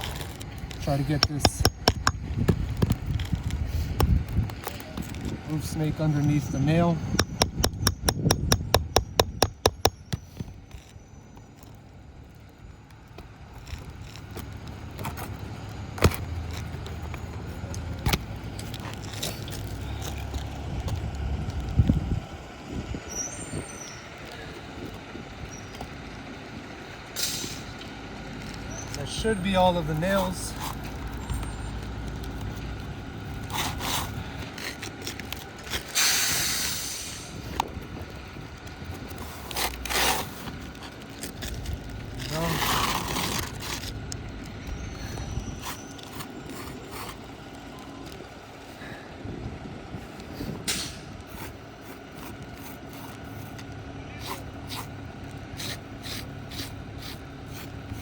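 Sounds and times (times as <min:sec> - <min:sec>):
shingle scraping and tearing: 0:00.0 - 0:22.0, 0:28.3 - 0:48.6, 0:51.1 - 0:58.0
vehicle engine rumbling: 0:00.0 - 0:58.0
hammer striking metal: 0:07.2 - 0:10.2.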